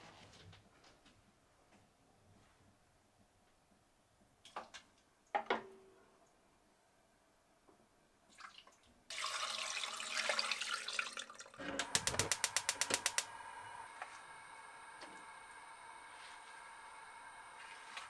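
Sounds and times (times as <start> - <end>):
liquid pouring into pot: 8.4 - 12.7
fast run of clicks: 11.8 - 13.3.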